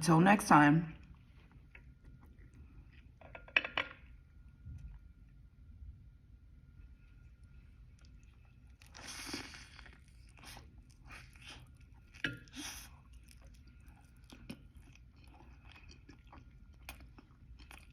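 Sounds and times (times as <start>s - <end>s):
person chewing crunchy food: 7.4s - 17.9s.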